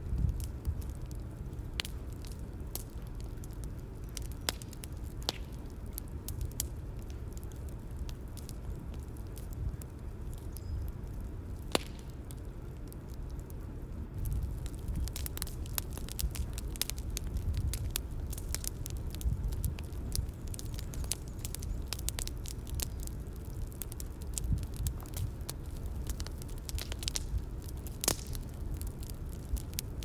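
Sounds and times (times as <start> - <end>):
sharp snap of fire: 0.0 - 13.6, 14.2 - 30.0
bonfire crackling and popping: 0.0 - 30.0
low rumble of flames: 0.0 - 30.0.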